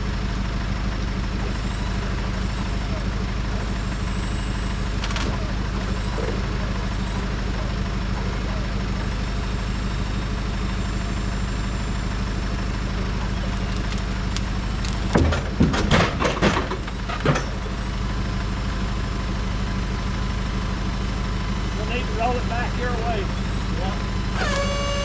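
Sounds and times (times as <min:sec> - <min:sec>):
engine idling: 0:00.0 - 0:25.0
timber clattering and squealing: 0:24.3 - 0:25.0.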